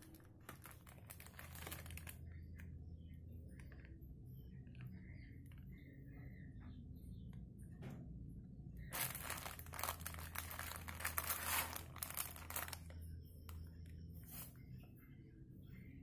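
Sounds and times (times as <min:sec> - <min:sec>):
wrapping crinkling and tearing: 0:00.0 - 0:02.3, 0:08.9 - 0:13.0.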